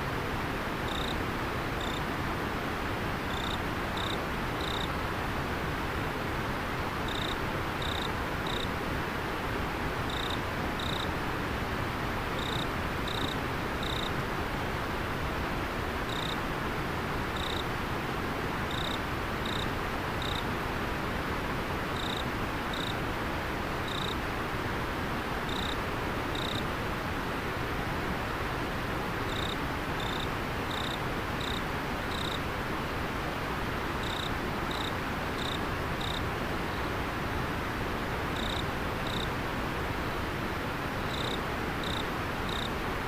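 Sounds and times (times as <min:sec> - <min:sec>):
insect chirping: 0:00.9 - 0:01.2, 0:01.8 - 0:02.0, 0:03.3 - 0:04.9, 0:07.1 - 0:08.7, 0:10.1 - 0:11.1, 0:12.4 - 0:14.1, 0:16.1 - 0:16.4, 0:17.4 - 0:17.6, 0:18.7 - 0:20.4, 0:22.0 - 0:23.0, 0:23.9 - 0:24.2, 0:25.5 - 0:25.8, 0:26.4 - 0:26.6, 0:29.3 - 0:32.4, 0:34.0 - 0:36.9, 0:38.4 - 0:39.3, 0:41.1 - 0:42.7.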